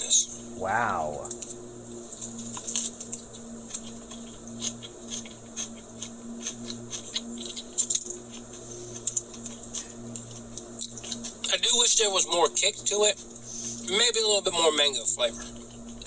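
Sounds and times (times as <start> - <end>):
man chewing crunchy food: 3.6 - 11.4.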